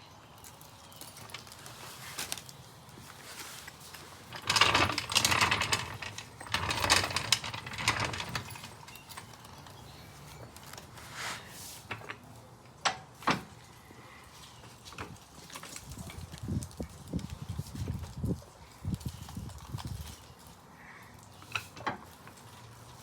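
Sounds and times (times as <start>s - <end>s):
metal car jack clanking: 4.4s - 9.0s.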